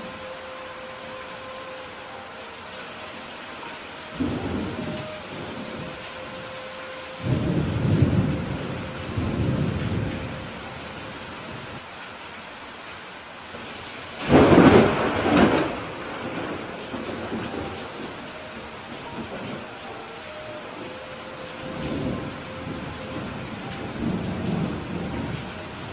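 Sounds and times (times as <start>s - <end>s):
steady rain: 0.0s - 25.9s
thunder rumbling: 4.1s - 11.8s, 14.2s - 25.9s.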